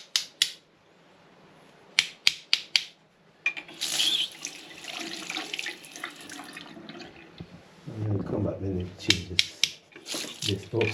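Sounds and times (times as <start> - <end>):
water rushing from pipe: 3.7 - 7.3, 10.0 - 10.8.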